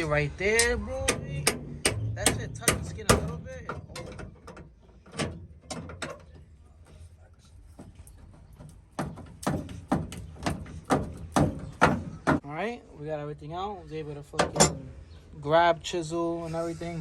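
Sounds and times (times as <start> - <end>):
hammer knocking on chisel and metal: 0.6 - 4.2, 9.0 - 12.4.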